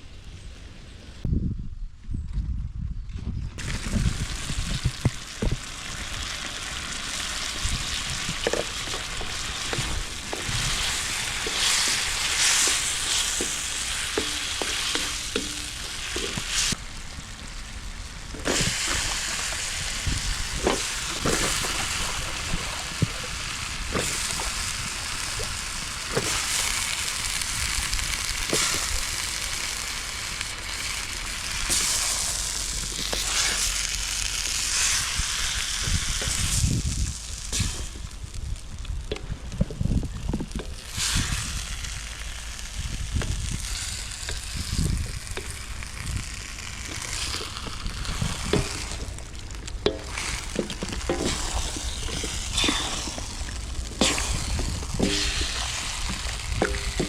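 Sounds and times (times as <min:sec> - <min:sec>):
food sizzling in a pan: 0:03.6 - 0:38.7, 0:40.8 - 0:57.0
stirring knocks and scrapes: 0:08.0 - 0:16.8, 0:46.9 - 0:57.0.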